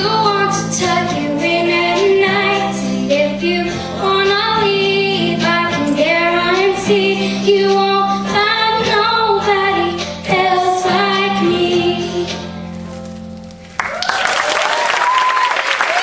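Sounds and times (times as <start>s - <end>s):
girl singing pop song: 0.0s - 12.7s
backing track music: 0.0s - 14.2s.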